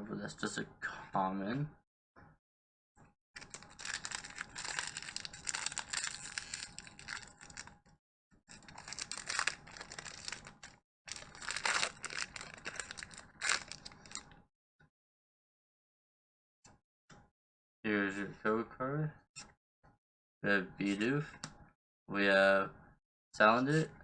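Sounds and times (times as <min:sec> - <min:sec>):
foil wrapper tearing and crinkling: 0:03.4 - 0:07.7, 0:08.5 - 0:14.2.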